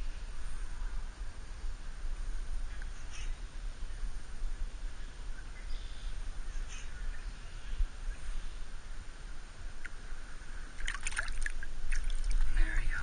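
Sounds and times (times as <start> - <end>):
low steady rumble: 0.0 - 13.0
bird calling faintly: 2.7 - 4.1, 4.9 - 8.8.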